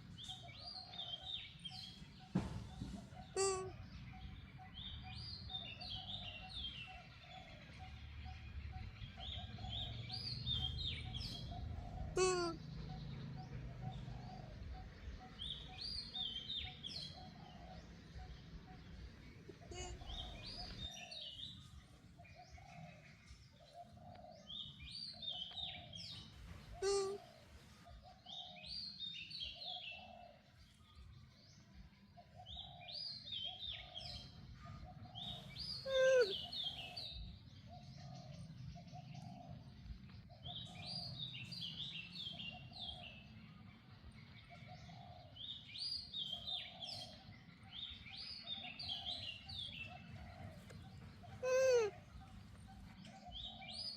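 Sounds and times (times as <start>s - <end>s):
bird song phrase: 0.0s - 53.9s
bird calls gliding downward: 3.3s - 3.8s, 11.9s - 12.6s, 26.8s - 27.3s, 35.7s - 37.0s, 48.7s - 53.9s
low cooing note: 3.4s - 3.8s, 12.0s - 12.6s, 19.6s - 20.8s, 26.8s - 27.3s, 51.2s - 52.1s.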